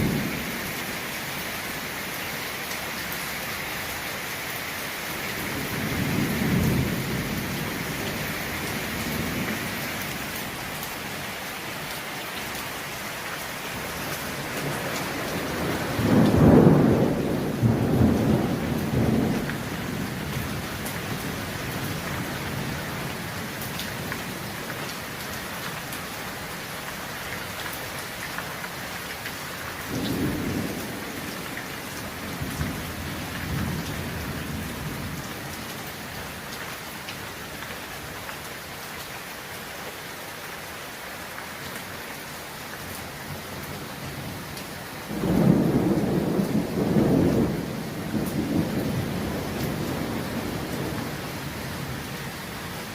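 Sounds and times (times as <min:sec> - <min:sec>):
heavy rain falling: 0:00.0 - 0:52.9
thunder rolling: 0:14.6 - 0:21.1, 0:45.1 - 0:51.3.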